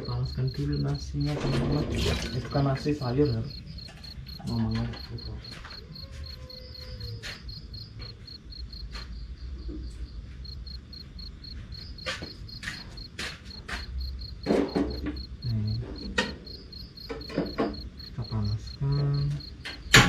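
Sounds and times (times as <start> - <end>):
cricket chirping: 0.0 - 20.0
sharp knocks and clatters: 11.8 - 18.2, 19.4 - 20.0.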